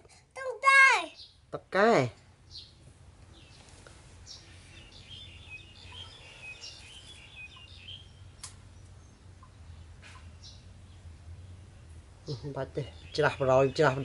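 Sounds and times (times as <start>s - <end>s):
small birds twittering: 0.7s - 14.0s
low steady hum: 1.3s - 14.0s
sharp click: 8.4s - 8.6s.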